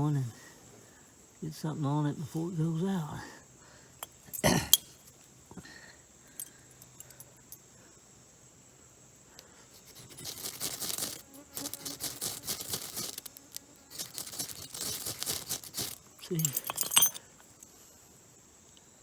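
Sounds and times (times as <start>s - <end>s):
dry tinder crackling and rustling: 9.9s - 17.0s.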